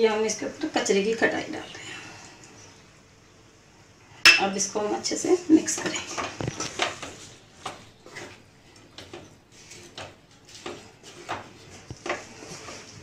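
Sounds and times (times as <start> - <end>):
spatula scraping frying pan: 9.5 - 13.0.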